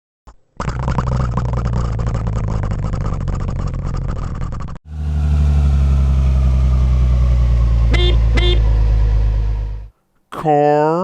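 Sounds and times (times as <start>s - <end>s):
deeper engine running: 2.2s - 9.9s
truck engine running: 4.9s - 9.9s.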